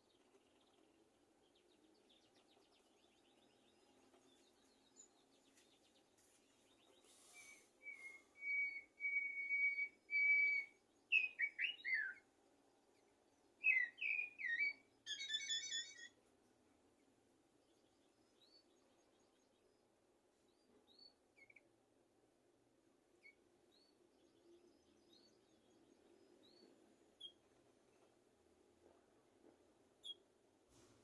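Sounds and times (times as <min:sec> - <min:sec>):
blackbird singing: 0:06.7 - 0:12.2, 0:13.3 - 0:16.2, 0:23.2 - 0:27.4.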